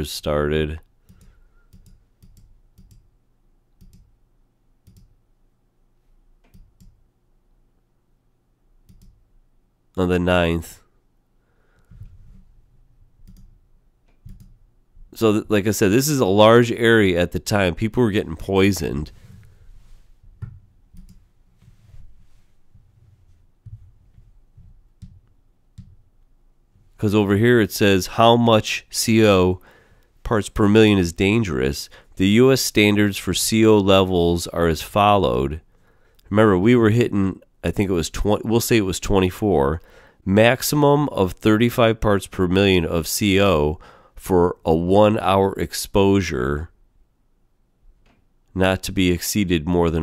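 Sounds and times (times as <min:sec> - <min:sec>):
computer mouse clicks: 0:01.0 - 0:03.1, 0:03.8 - 0:04.1, 0:04.8 - 0:05.1, 0:06.4 - 0:07.0, 0:08.9 - 0:09.2, 0:13.2 - 0:14.6, 0:20.4 - 0:21.2.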